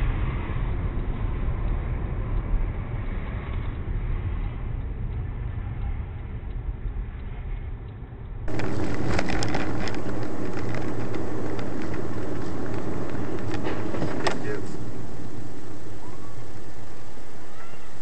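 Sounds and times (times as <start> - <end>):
car road and engine rumble: 8.4 - 18.0
scattered ticks: 8.5 - 17.7.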